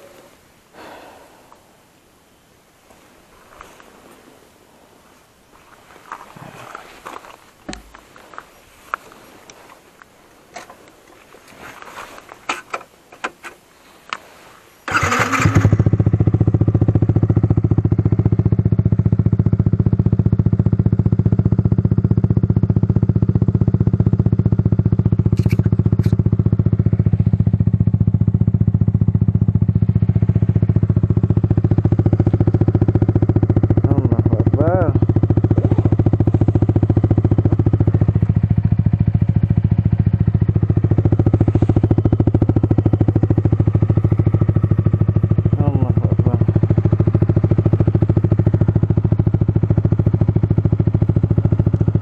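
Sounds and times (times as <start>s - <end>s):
footsteps on grass and gravel: 5.5s - 12.4s
motorcycle engine starting and idling: 14.8s - 52.0s.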